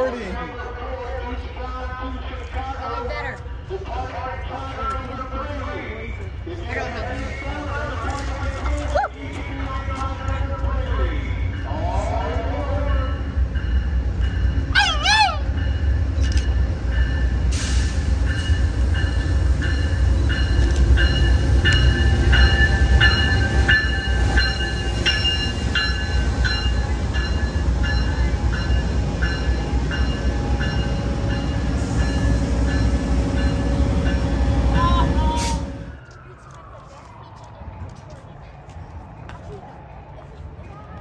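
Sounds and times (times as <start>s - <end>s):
train rumbling: 0.0s - 41.0s
bell ringing: 18.3s - 35.0s.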